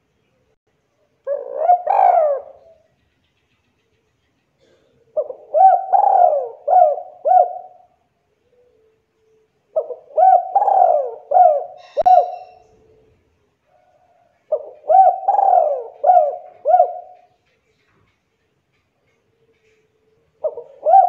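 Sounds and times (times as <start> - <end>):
dove cooing: 1.2 - 2.8, 4.6 - 8.9, 9.7 - 13.2, 14.1 - 17.4, 19.5 - 21.0.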